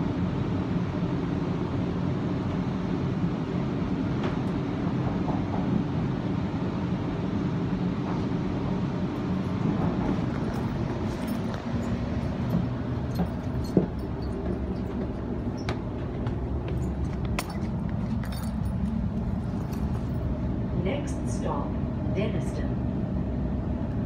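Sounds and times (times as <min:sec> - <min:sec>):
train interior rumble: 0:00.0 - 0:24.0
sharp clicks and clinks: 0:16.7 - 0:20.1.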